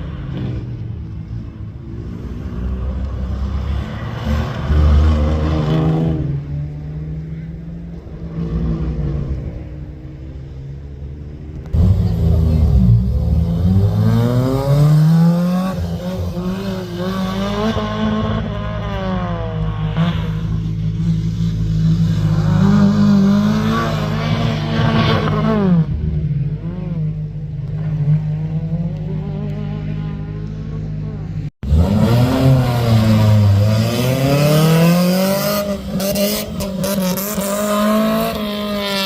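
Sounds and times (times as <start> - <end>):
rally car engine accelerating: 11.6 - 39.0.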